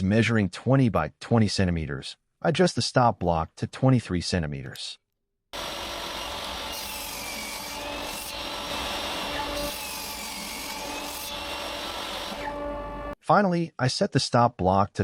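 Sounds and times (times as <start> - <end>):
table saw cutting wood: 5.6 - 13.2.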